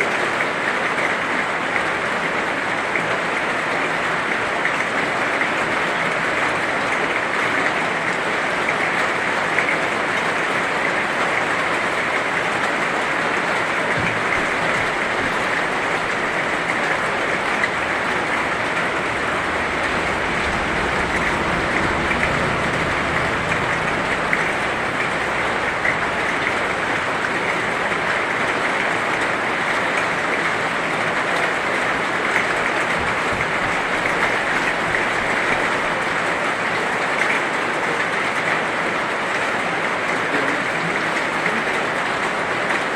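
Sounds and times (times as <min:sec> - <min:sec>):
heavy rain falling: 0:00.0 - 0:42.9
low rumble: 0:17.2 - 0:27.4.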